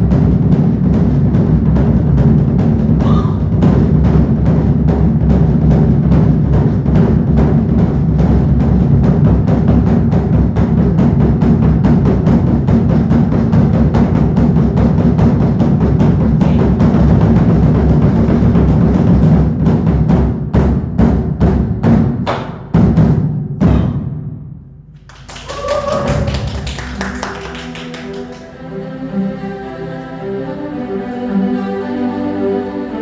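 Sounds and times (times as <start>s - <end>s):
large barrel drums rolling: 0.0s - 21.8s.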